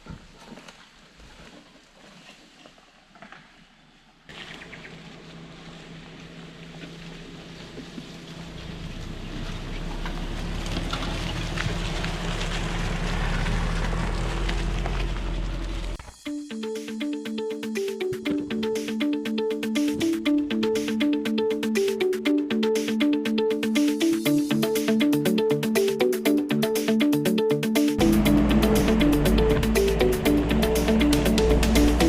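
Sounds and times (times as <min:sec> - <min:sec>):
car engine running: 0:04.3 - 0:16.0, 0:28.0 - 0:32.0
low rumble: 0:28.0 - 0:32.0.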